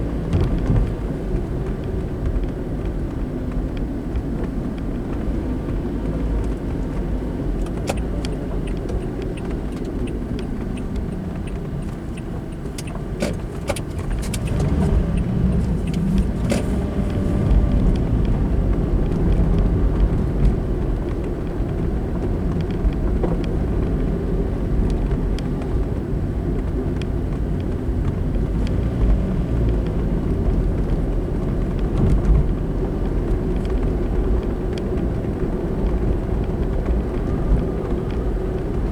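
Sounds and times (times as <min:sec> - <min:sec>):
car engine and tyre rumble: 0:00.0 - 0:38.9
small clicks and rattles: 0:00.4 - 0:18.4.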